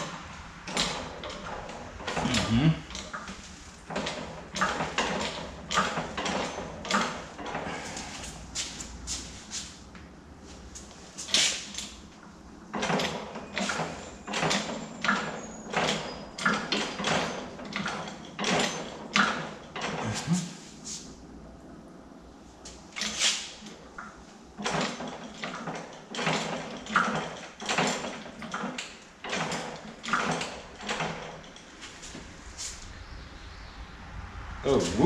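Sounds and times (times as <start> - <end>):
hydraulic jack pumped by hand: 0.7 - 9.7, 11.2 - 12.0, 12.7 - 21.0, 23.0 - 23.8.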